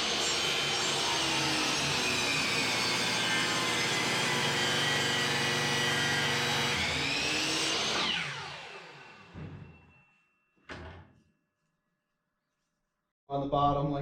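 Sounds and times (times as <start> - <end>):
miter saw motor whine: 0.0 - 9.8.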